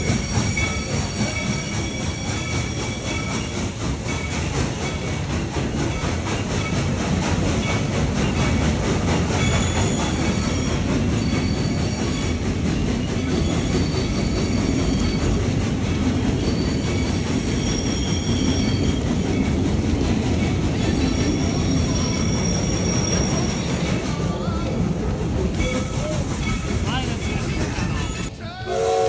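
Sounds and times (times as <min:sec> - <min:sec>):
high wheel squeals: 0:00.0 - 0:06.9, 0:07.6 - 0:19.6, 0:20.3 - 0:24.6
steam train rumbling: 0:00.0 - 0:29.0.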